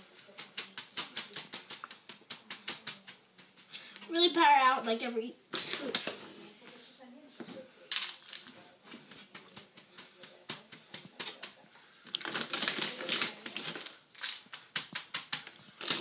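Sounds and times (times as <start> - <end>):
paper being patted and rustling: 0.0 - 3.7.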